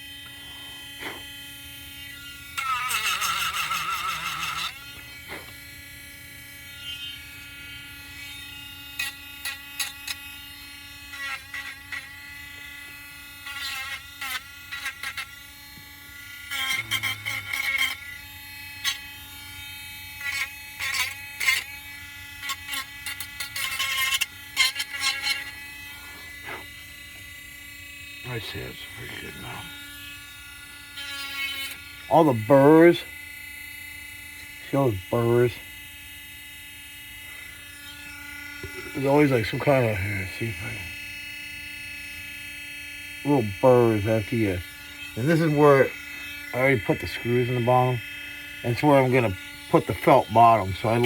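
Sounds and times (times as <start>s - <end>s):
steady electrical hum: 0.0s - 51.0s
hand sanding scraping strokes: 0.2s - 1.3s, 22.4s - 26.8s, 43.3s - 48.0s, 48.7s - 51.0s.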